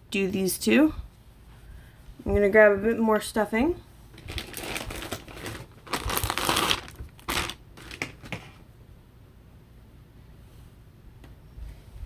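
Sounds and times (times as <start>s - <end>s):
bag crinkling and rustling: 4.2s - 8.6s.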